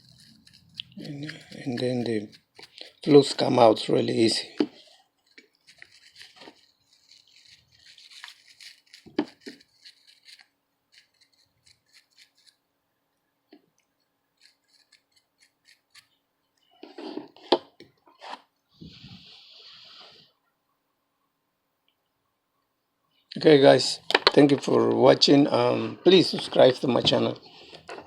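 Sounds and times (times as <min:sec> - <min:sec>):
toothbrush scrubbing circuit board: 0:00.0 - 0:03.9, 0:05.2 - 0:12.6, 0:14.4 - 0:16.1.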